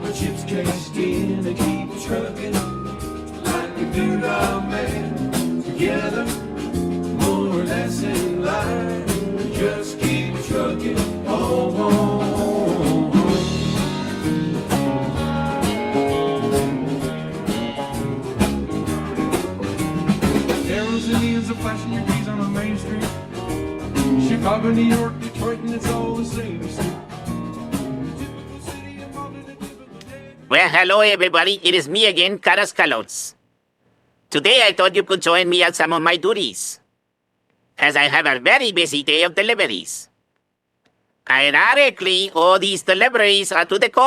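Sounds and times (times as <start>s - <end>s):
person singing: 0.0s - 2.8s, 3.4s - 6.5s, 7.2s - 14.1s, 20.6s - 23.3s, 24.0s - 27.0s, 28.0s - 30.6s
guitar: 0.0s - 30.6s
steady drum beat: 0.1s - 29.8s.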